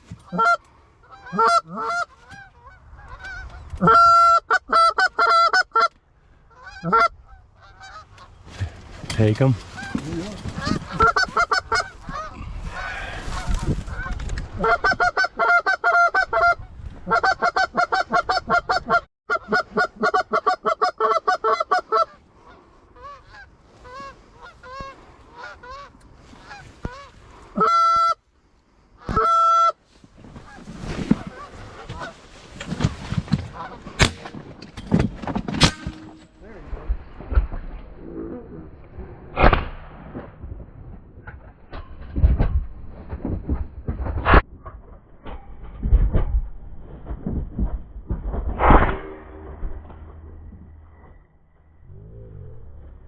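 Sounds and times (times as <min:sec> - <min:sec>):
geese honking: 0:00.3 - 0:08.4, 0:09.7 - 0:28.2.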